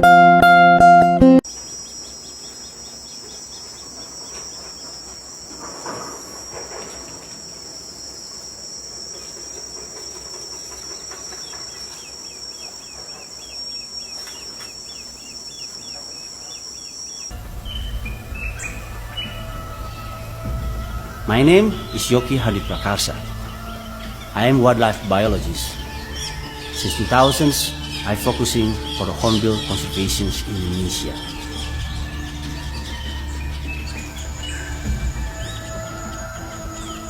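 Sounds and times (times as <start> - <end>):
insect chirps: 1.4 - 37.0
insects buzzing drone: 1.4 - 37.0
low hum: 17.3 - 37.0.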